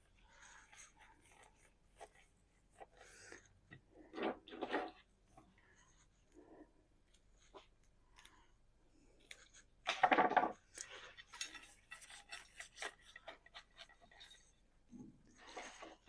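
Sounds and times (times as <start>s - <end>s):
small clicks and crackles: 7.0s - 14.6s.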